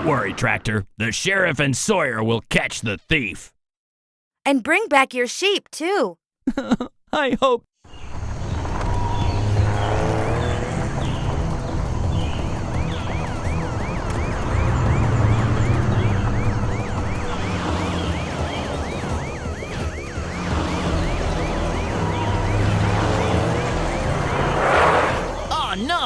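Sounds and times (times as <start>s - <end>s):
cartoon police siren yelping: 13.0s - 24.4s.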